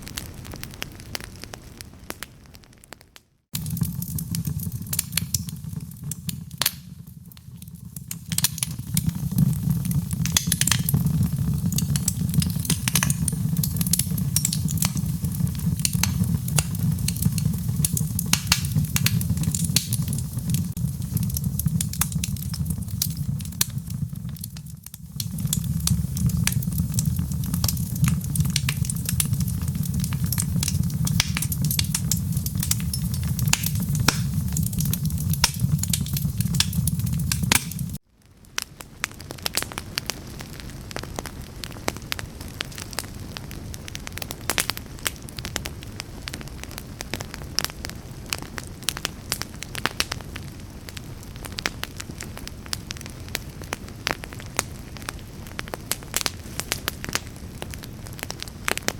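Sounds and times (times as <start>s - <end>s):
fire crackling and popping: 0.0s - 58.9s
flames rumbling: 0.0s - 58.9s.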